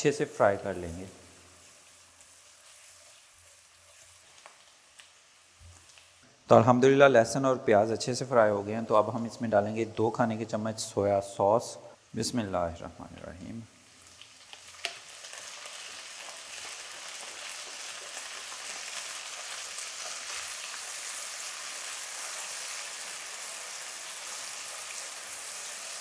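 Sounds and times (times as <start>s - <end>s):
garlic and onion frying in oil: 0.0s - 26.0s
spatula stirring: 1.6s - 4.8s.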